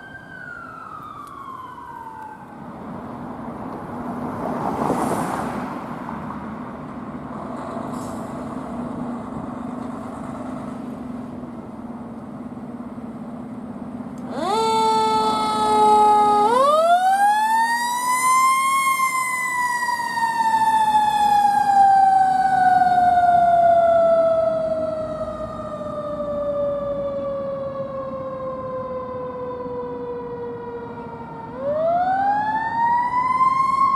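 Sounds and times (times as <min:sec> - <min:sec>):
mechanical siren wailing: 0:00.0 - 0:02.6, 0:14.2 - 0:33.9
fire truck engine running: 0:06.2 - 0:33.9.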